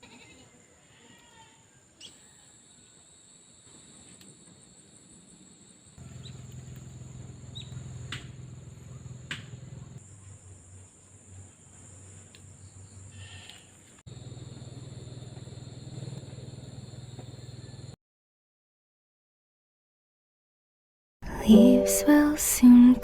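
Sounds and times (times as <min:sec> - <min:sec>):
insects chirring: 0:02.0 - 0:18.0.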